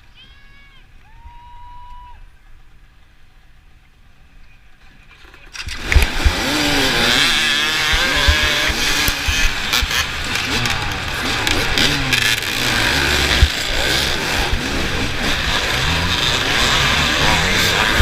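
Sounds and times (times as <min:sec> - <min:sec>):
motorcycle engines revving: 0:05.2 - 0:18.0.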